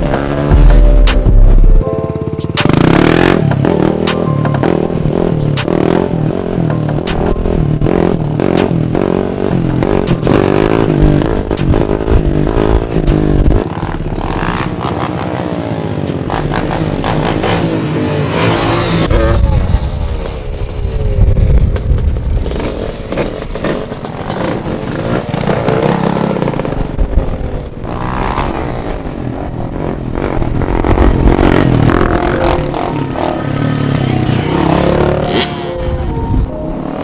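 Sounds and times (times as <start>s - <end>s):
dirt bike engines revving: 2.5s - 37.0s
wind buffeting microphone: 19.1s - 33.3s.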